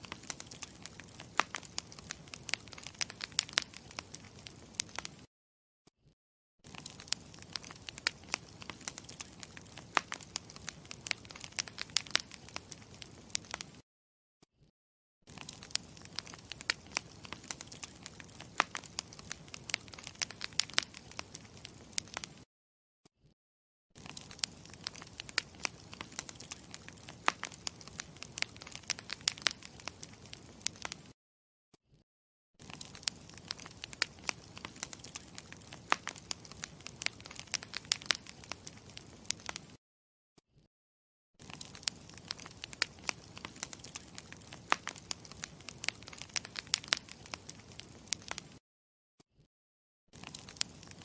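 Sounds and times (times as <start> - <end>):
campfire crackling: 0.0 - 5.3, 6.7 - 13.8, 15.3 - 22.4, 24.0 - 31.1, 32.6 - 39.8, 41.4 - 48.6, 50.2 - 51.0.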